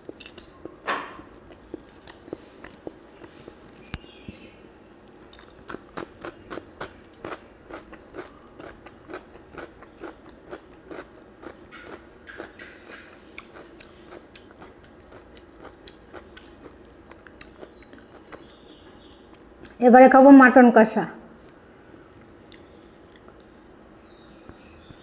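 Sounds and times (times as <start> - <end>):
wet mouth chewing clicks: 5.7 - 18.6.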